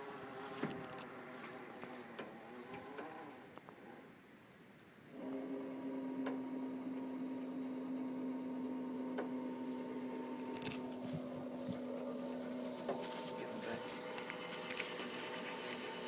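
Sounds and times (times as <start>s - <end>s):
electric winch motor humming: 5.1s - 16.0s.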